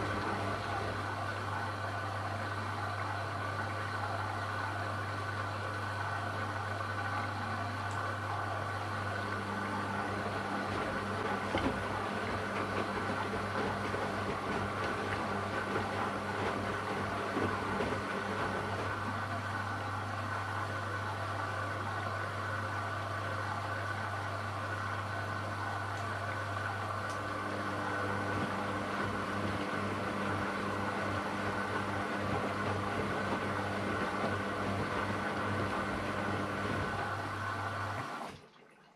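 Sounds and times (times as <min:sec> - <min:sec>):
washing machine churning: 0:00.0 - 0:38.9
washing machine motor hum: 0:00.0 - 0:38.9.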